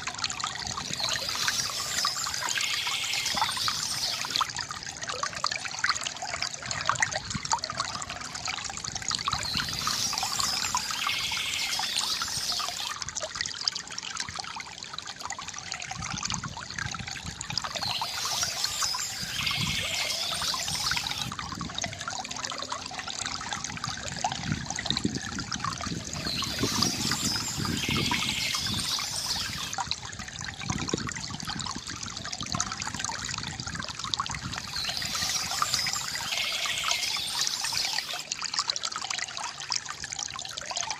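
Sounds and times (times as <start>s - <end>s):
fountain water trickling: 0.0s - 40.9s
birds chirping: 0.9s - 4.5s, 9.4s - 12.9s, 17.7s - 21.3s, 26.2s - 29.8s, 34.6s - 38.2s.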